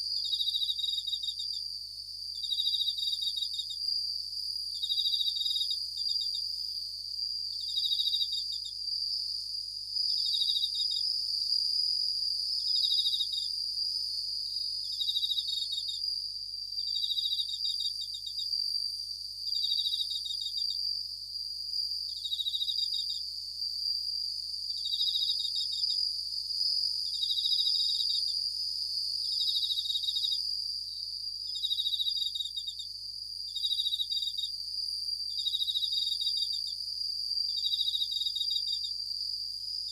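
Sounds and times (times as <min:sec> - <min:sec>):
crickets chirping: 0:00.0 - 0:39.9
high insect trill: 0:00.0 - 0:39.9.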